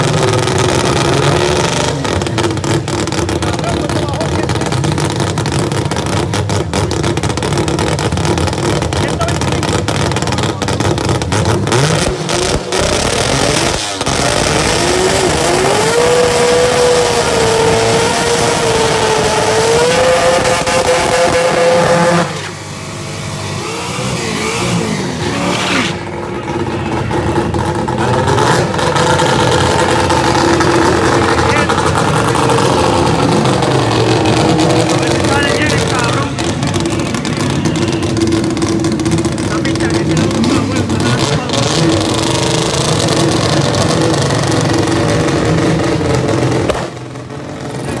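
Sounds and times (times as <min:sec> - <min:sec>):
rotary engine revving: 0:00.0 - 0:48.0.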